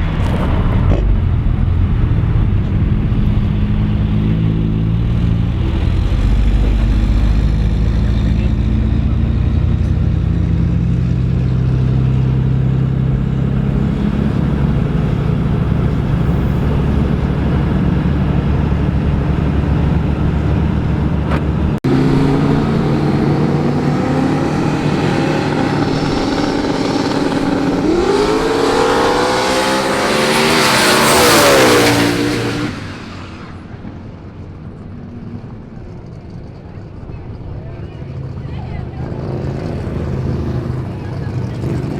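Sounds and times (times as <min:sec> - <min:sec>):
truck engine running: 0:00.0 - 0:30.8
vehicle passing close: 0:00.0 - 0:34.8.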